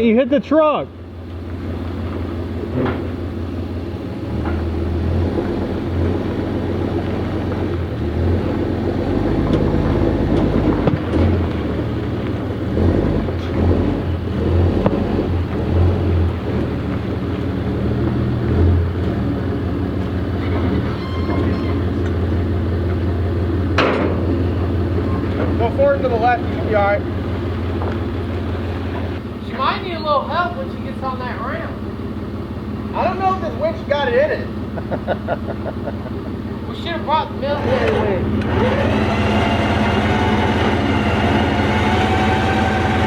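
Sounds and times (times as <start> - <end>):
truck engine rumbling: 0.0 - 43.0
clunks and rattles: 2.1 - 3.3, 9.4 - 11.8, 23.6 - 24.5.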